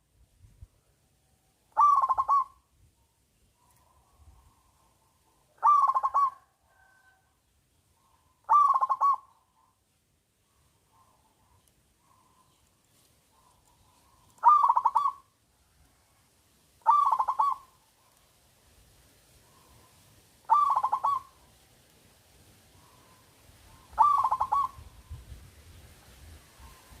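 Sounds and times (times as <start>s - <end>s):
dove cooing: 1.8s - 2.6s, 5.5s - 7.2s, 8.0s - 9.7s, 13.3s - 15.3s, 16.8s - 17.8s, 19.5s - 21.4s, 22.8s - 25.2s
soft faint bird notes: 16.8s - 18.4s, 22.8s - 25.9s.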